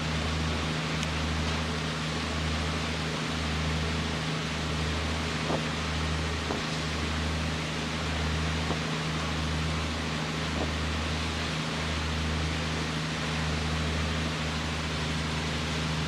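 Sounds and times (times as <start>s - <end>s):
diesel engines humming: 0.0s - 16.0s.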